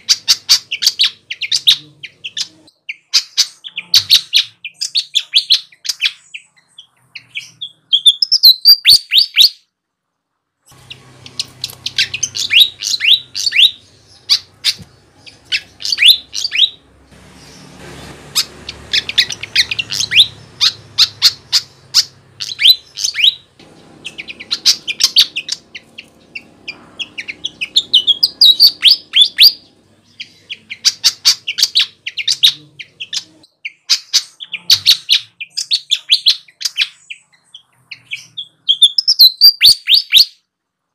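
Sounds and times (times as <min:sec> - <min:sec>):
flycatcher singing: 0:10.7 - 0:33.9.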